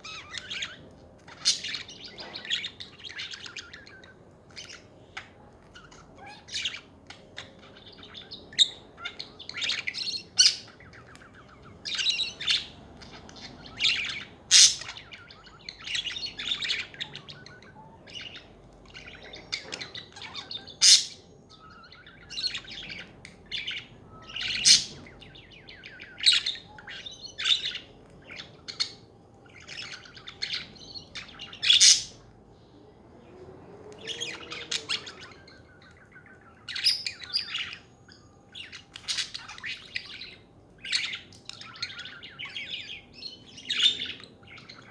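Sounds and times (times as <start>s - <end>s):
budgerigars chattering: 0.0s - 32.3s, 34.0s - 44.9s
sharp bird chirps: 7.6s - 32.3s.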